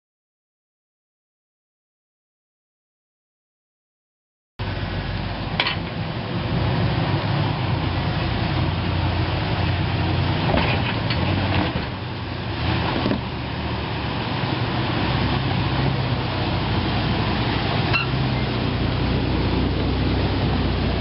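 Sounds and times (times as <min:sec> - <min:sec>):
vehicle engine running: 0:04.6 - 0:21.0
sharp knocks and clunks: 0:10.4 - 0:12.0.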